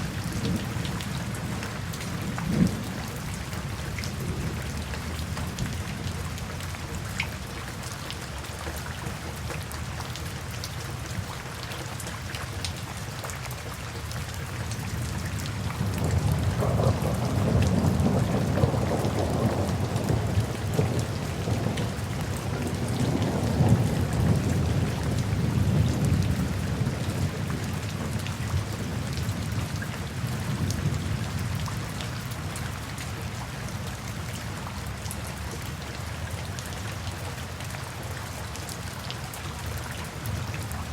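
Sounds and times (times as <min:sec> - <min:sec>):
steady rain falling: 0:00.0 - 0:40.9
low roll of thunder: 0:15.0 - 0:31.7.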